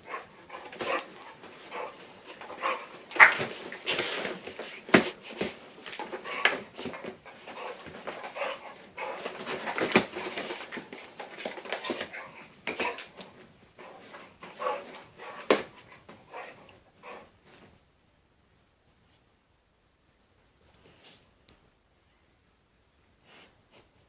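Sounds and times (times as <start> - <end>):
animals scuffling: 0.0 - 17.8
dog panting and whimpering: 5.1 - 13.1.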